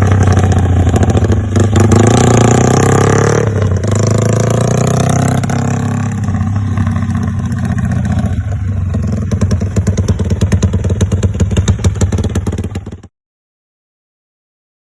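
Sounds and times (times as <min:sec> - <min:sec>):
motorcycle engine idling lumpily: 0:05.4 - 0:13.1.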